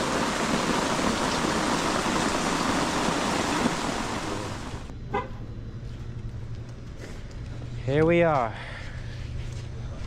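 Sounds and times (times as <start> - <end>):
heavy rain falling: 0.0 - 4.9.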